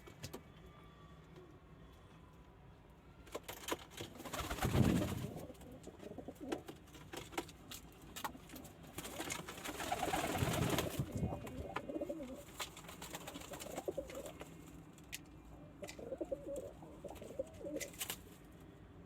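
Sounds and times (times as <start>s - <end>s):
pigeons cooing: 4.3s - 6.8s, 9.7s - 14.6s, 15.6s - 18.0s.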